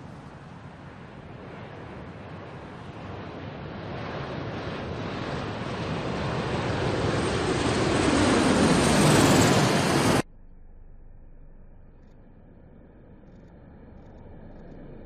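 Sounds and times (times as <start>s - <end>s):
jet aircraft passing: 0.0s - 15.0s
faint high whine: 8.8s - 15.0s.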